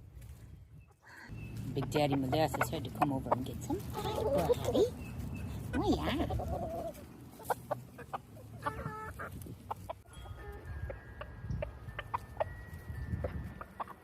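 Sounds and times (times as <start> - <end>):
chickens clucking: 0.9 - 14.0.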